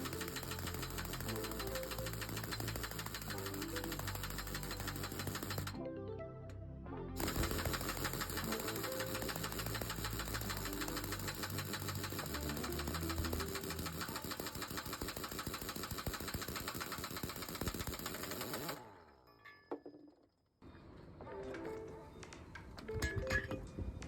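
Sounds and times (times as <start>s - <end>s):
air impact wrench hammering: 0.0s - 5.8s, 7.2s - 18.8s.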